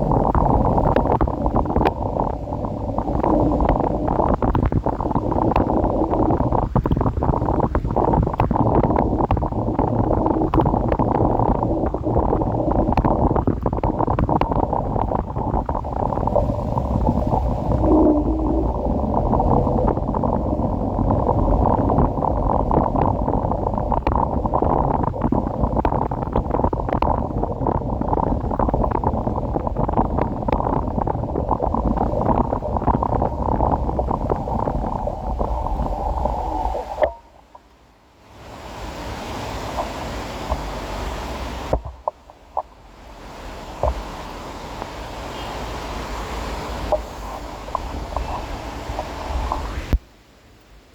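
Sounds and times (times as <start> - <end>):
sharp ticks: 0.0 - 18.8, 19.4 - 35.5
wind buffeting microphone: 0.0 - 37.6, 43.8 - 50.0.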